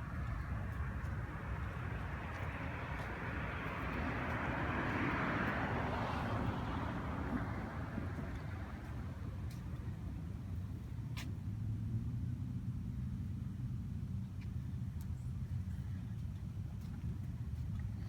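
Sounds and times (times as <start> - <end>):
car passing by: 1.9 - 9.2.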